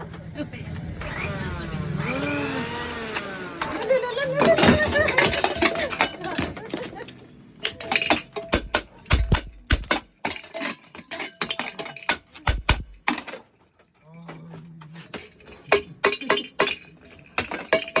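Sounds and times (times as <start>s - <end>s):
metal kitchenware clattering: 3.6s - 14.4s, 15.0s - 18.0s.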